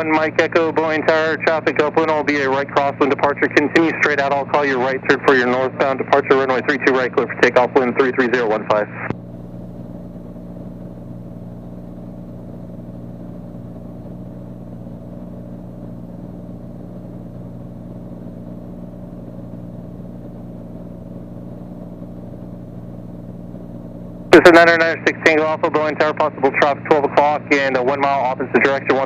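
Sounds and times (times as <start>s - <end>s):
airplane piston engine droning: 0.0s - 29.0s.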